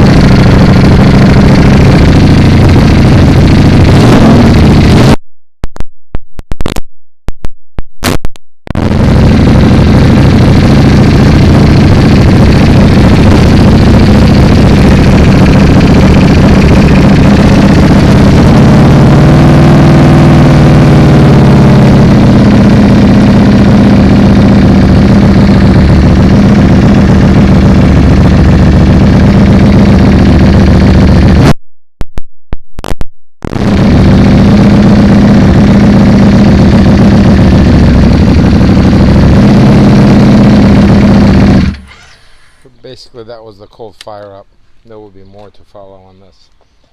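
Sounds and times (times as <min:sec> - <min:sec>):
motorcycle engine idling: 0:00.0 - 0:05.1, 0:08.8 - 0:31.5, 0:33.6 - 0:42.8.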